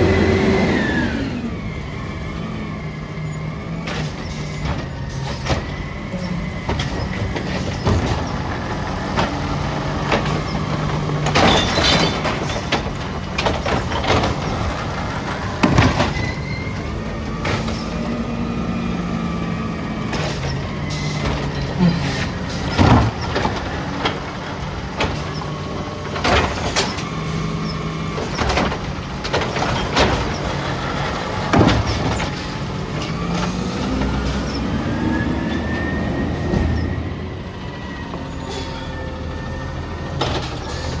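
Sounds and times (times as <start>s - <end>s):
diesel engine revving: 0.0s - 41.0s
metal clanks and bangs: 3.7s - 18.2s, 20.0s - 34.7s
air brakes hissing: 20.1s - 23.3s, 38.1s - 39.2s.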